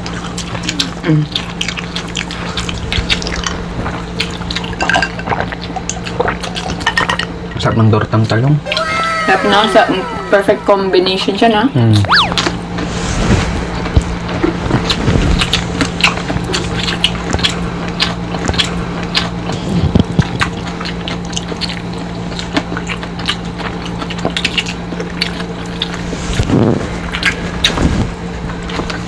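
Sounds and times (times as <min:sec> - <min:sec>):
chewing and crunching fried fish: 0:00.0 - 0:07.5, 0:13.8 - 0:29.0
low hum: 0:00.0 - 0:29.0.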